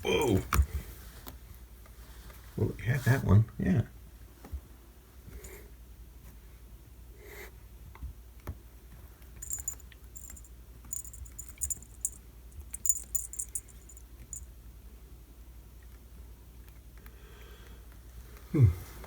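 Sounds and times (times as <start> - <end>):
cat toy jingling: 9.4 - 14.5.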